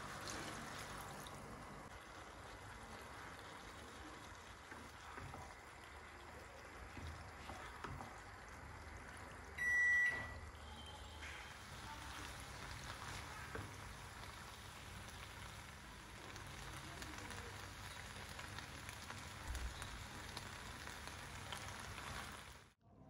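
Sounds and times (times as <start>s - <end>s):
spatula stirring: 0.0s - 9.4s
food sizzling in frying pan: 0.0s - 22.8s.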